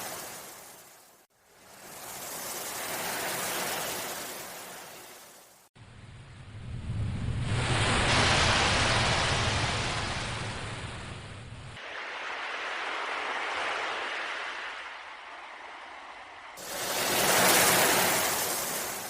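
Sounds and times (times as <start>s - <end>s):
ocean waves washing in: 0.0s - 19.0s
low rumble: 5.8s - 11.8s.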